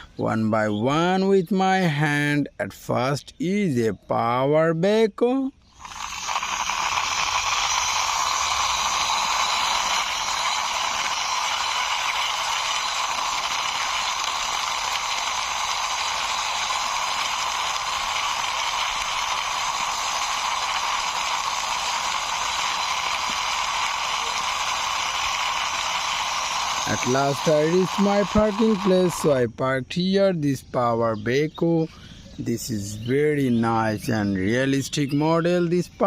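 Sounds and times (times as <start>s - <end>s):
toy vehicle whirring rattle: 5.7s - 29.4s.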